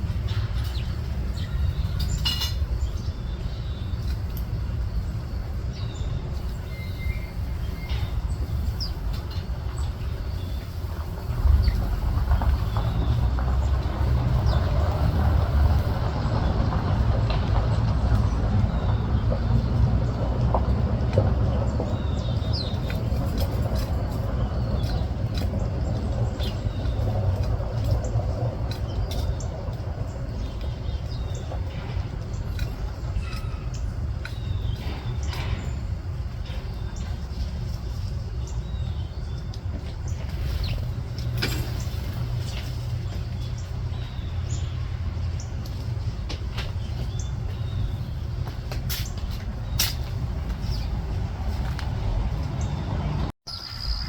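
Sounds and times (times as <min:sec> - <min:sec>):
small birds chirping: 0:00.0 - 0:54.0
steady low rumble: 0:00.0 - 0:54.0
high bird chirps: 0:05.8 - 0:10.8, 0:53.5 - 0:54.0.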